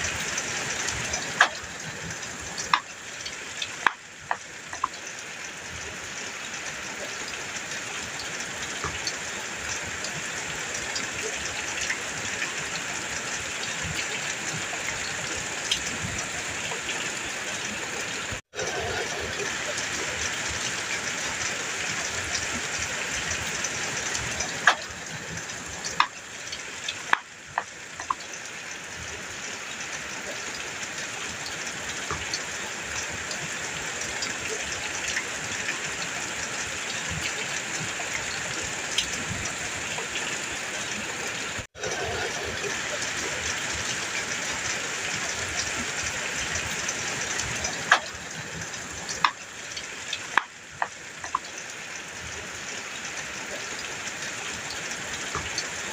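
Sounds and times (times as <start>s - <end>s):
heavy rain on a metal roof: 0.0s - 55.9s
raindrop strikes: 0.1s - 5.9s, 18.6s - 29.1s, 41.8s - 51.6s.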